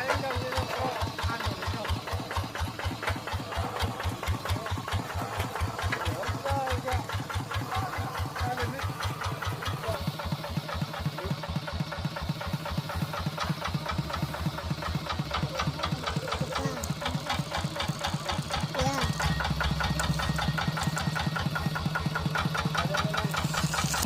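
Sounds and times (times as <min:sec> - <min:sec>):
tractor engine pulsing: 0:00.0 - 0:24.0.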